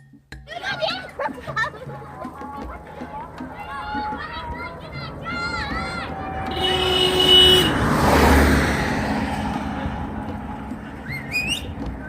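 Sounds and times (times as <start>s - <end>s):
motor vehicle rushing past: 2.2s - 12.0s
vehicle horn: 5.8s - 8.7s.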